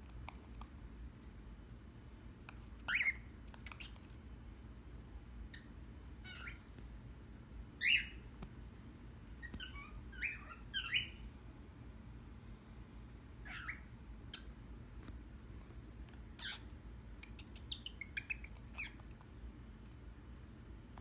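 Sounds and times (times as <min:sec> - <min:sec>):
bird chirping and squawking: 0:02.8 - 0:04.1, 0:05.5 - 0:06.7, 0:07.8 - 0:08.3, 0:09.4 - 0:11.3, 0:13.4 - 0:14.5, 0:16.4 - 0:19.1.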